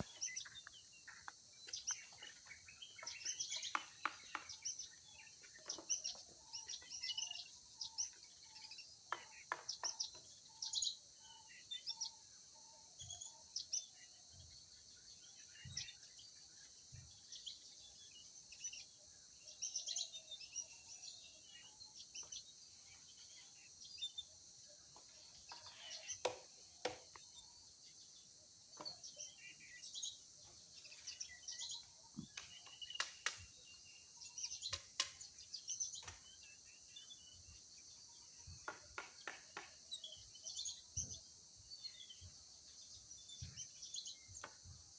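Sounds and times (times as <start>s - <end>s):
birds chirping: 0.0s - 44.9s
sharp snaps or knocks: 32.2s - 33.5s, 34.7s - 35.2s.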